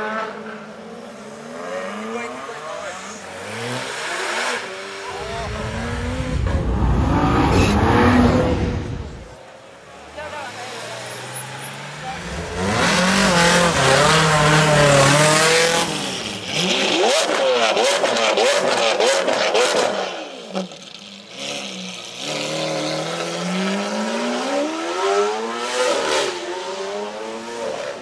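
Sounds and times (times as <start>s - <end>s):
car accelerating away: 1.5s - 9.4s.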